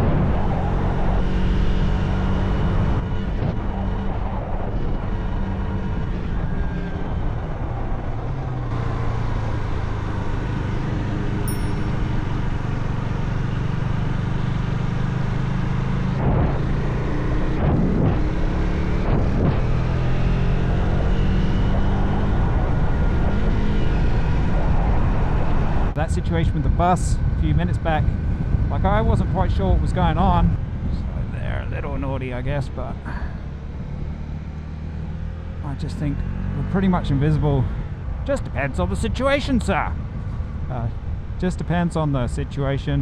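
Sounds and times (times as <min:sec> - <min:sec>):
motorcycle engine accelerating: 0:00.0 - 0:26.6.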